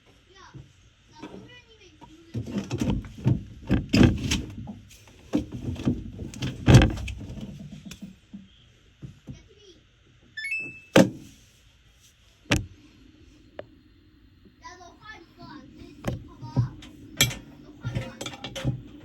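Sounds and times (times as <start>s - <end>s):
washing machine door clunks: 2.7s - 4.6s, 5.7s - 7.2s, 10.5s - 11.3s, 12.5s - 12.7s
rising electronic beeps: 10.4s - 11.0s.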